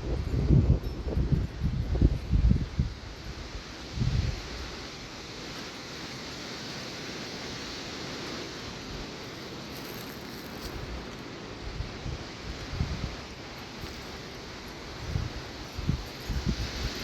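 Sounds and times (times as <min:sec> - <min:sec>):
wind buffeting microphone: 0:00.0 - 0:05.3, 0:10.6 - 0:17.0
wind rushing through trees: 0:00.0 - 0:17.0.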